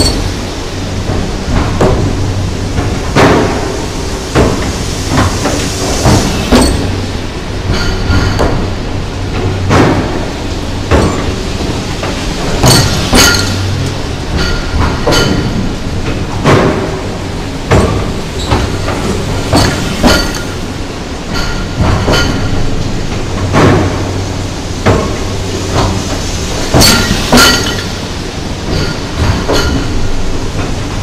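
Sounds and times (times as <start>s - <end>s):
metallic clanks ringing: 0.0s - 0.4s, 7.7s - 8.6s, 12.6s - 15.6s, 19.5s - 20.6s, 26.8s - 28.0s, 28.7s - 30.0s.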